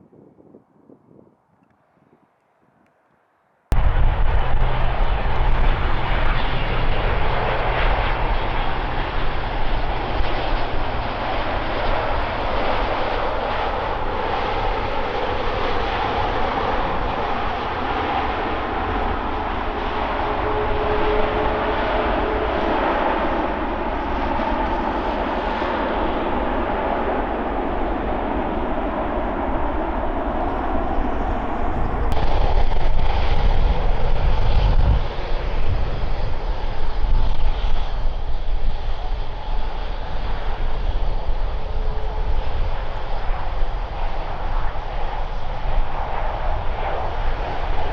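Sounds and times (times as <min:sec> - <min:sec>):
faint engine whine: 0:03.7 - 0:47.9
jet engine roar: 0:03.7 - 0:47.9.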